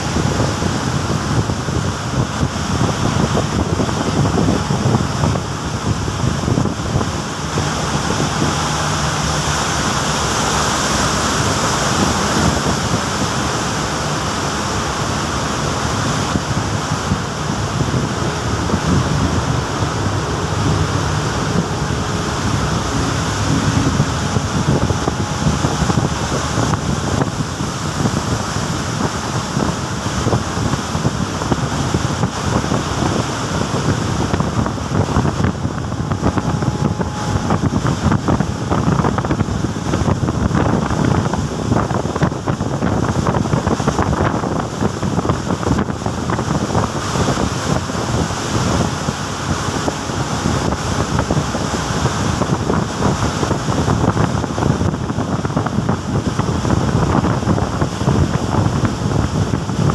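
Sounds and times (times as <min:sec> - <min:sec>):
ocean waves surging: 0:00.0 - 0:59.9
wind buffeting microphone: 0:00.0 - 0:59.9.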